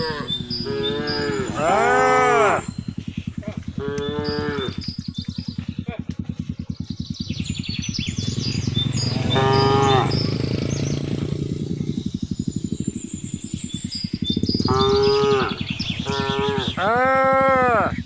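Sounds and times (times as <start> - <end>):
cattle mooing: 0.0 - 2.8, 3.4 - 4.9, 8.8 - 11.0, 14.7 - 18.0.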